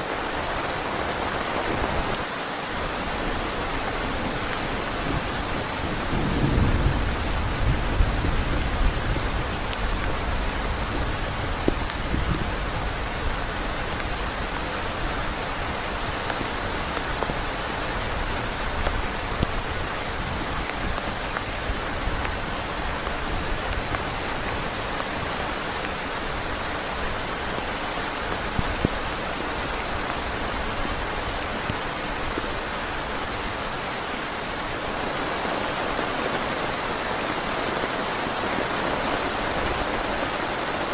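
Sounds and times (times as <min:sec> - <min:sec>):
heavy rain on a tent: 0:00.0 - 0:40.9
thunder rumble: 0:05.0 - 0:12.9.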